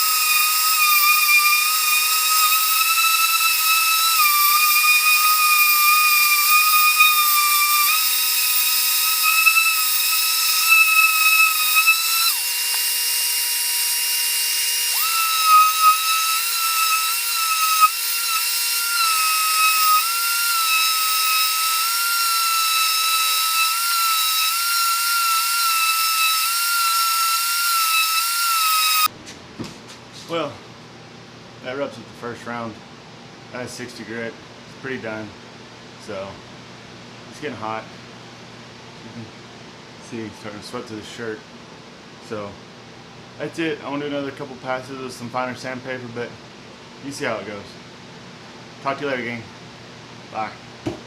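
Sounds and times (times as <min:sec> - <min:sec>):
orbit sander whining on wood: 0:00.0 - 0:29.1.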